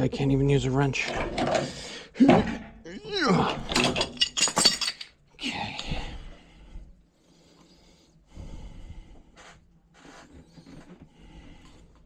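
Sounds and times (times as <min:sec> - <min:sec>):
person breathing hard: 0:01.6 - 0:02.2, 0:05.7 - 0:09.6, 0:11.0 - 0:12.0.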